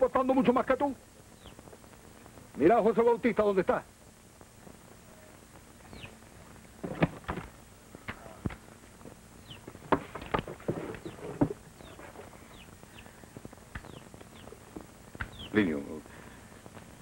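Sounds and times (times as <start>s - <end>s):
birds chirping: 0.0s - 3.5s, 4.9s - 6.8s, 7.6s - 17.0s
sharp knocks and thuds: 6.8s - 8.6s, 9.7s - 11.6s.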